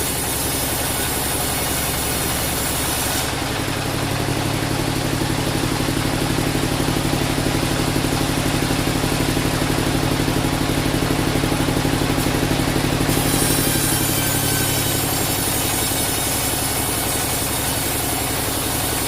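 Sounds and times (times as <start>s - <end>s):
sawmill engine pulsing: 0.0s - 19.0s.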